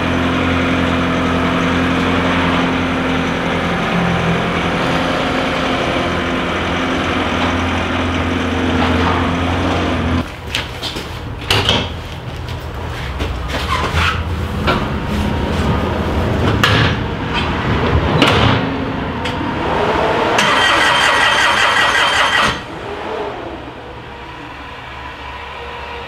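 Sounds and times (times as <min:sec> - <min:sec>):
diesel engine running: 0:00.0 - 0:10.4, 0:14.2 - 0:26.0
high-pitched whine: 0:19.1 - 0:26.0.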